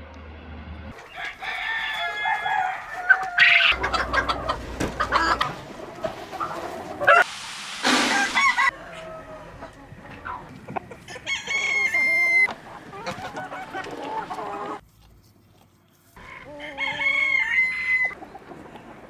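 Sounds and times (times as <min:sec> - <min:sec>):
rooster crowing: 0:00.9 - 0:05.6, 0:08.0 - 0:10.0, 0:11.1 - 0:12.5, 0:16.3 - 0:18.2
hens clucking: 0:00.9 - 0:14.8, 0:16.2 - 0:19.0
harsh chicken squawk: 0:01.0 - 0:09.1, 0:10.2 - 0:14.8, 0:16.2 - 0:18.2.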